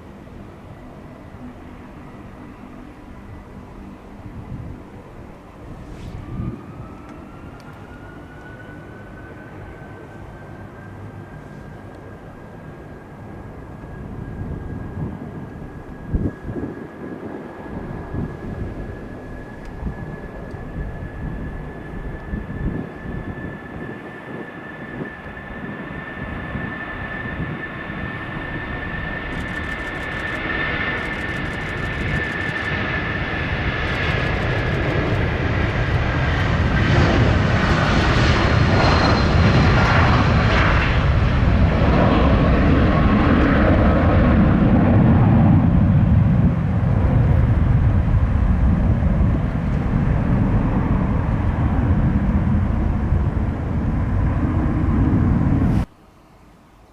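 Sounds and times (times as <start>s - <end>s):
jet engines roaring at takeoff: 0.0s - 56.0s.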